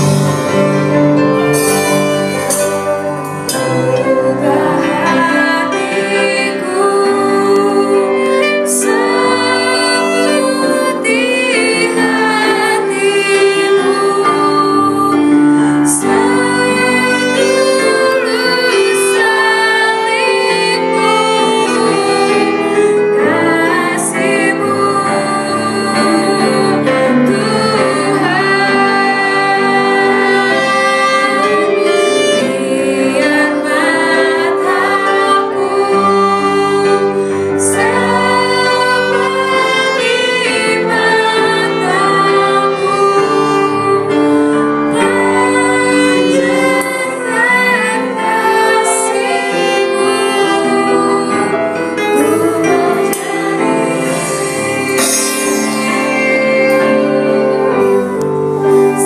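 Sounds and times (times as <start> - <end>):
drums: 0.0 - 3.5
saxophone melody: 0.0 - 5.5, 51.9 - 59.0
electric keyboard: 0.0 - 59.0
woman singing: 3.5 - 59.0.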